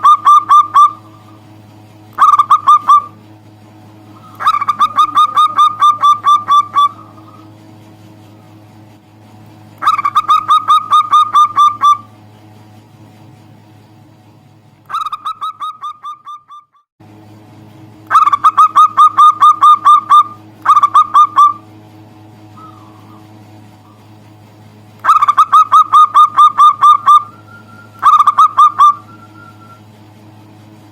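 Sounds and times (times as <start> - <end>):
dove calling rapid repeated notes: 0.0 - 3.3, 4.0 - 7.9, 9.8 - 12.3, 14.9 - 16.8, 18.0 - 21.8, 22.4 - 24.2, 25.0 - 29.9
steady low hum: 0.0 - 30.9.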